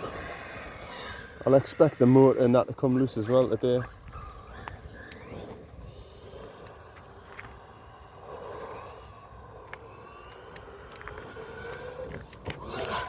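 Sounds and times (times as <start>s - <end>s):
electric motor whining: 0.0s - 2.8s, 3.4s - 13.0s
small clicks: 6.3s - 7.9s, 8.6s - 13.0s.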